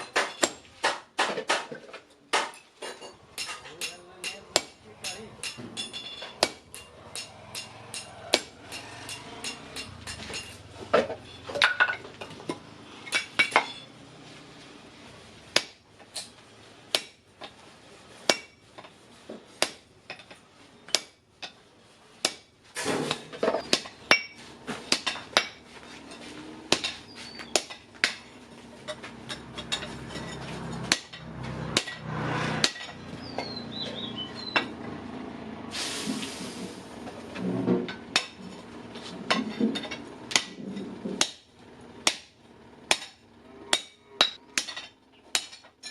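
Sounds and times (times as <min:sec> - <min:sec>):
hammer striking steel: 0:02.3 - 0:10.6, 0:18.3 - 0:18.6, 0:29.0 - 0:33.0, 0:42.9 - 0:45.9
brief hiss: 0:35.7 - 0:36.8.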